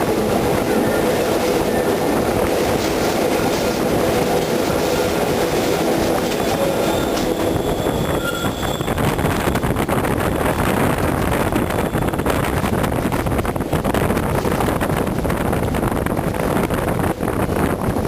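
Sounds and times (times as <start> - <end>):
electric train running: 0.0 - 18.0
wind buffeting microphone: 0.0 - 18.0
train wheel squeal: 5.8 - 12.6.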